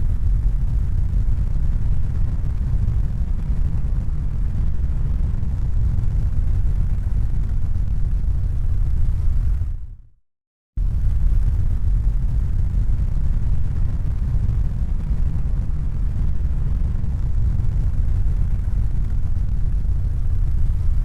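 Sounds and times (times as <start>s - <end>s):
loud low rumble: 10.8s - 21.0s.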